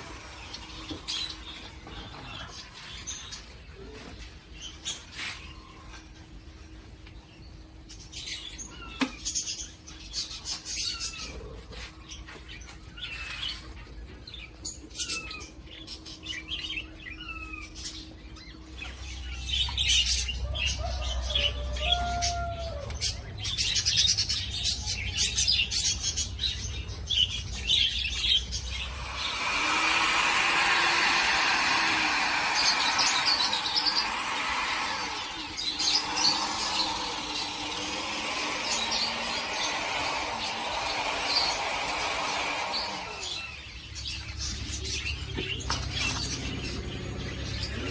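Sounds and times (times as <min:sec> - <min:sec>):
budgerigars chirping: 0:19.1 - 0:47.9
loud dense noise: 0:28.6 - 0:43.7.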